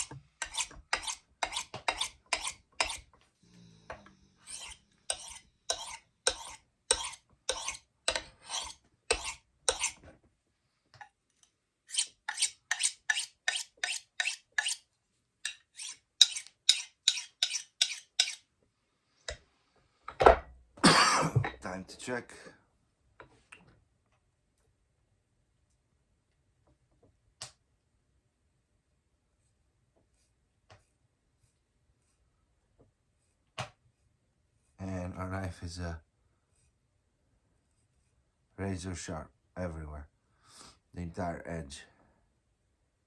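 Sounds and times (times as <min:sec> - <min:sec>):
knife scraping on honing rod: 0:00.0 - 0:03.2, 0:04.4 - 0:10.0, 0:11.9 - 0:18.5.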